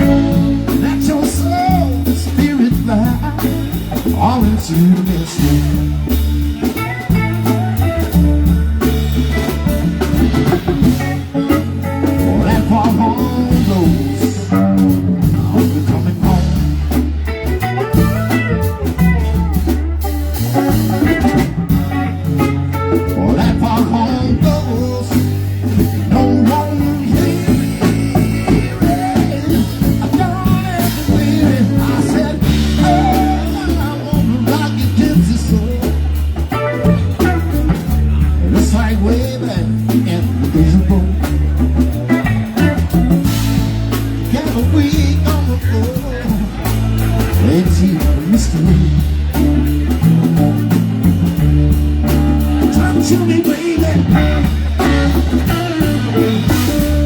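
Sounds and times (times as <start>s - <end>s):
live band playing: 0.0s - 57.0s.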